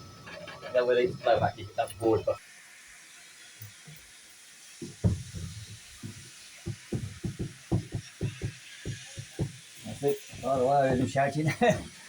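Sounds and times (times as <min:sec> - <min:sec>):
wheels knocking over rail joints: 0:00.0 - 0:02.2, 0:04.8 - 0:12.0
steady hiss: 0:00.0 - 0:12.0.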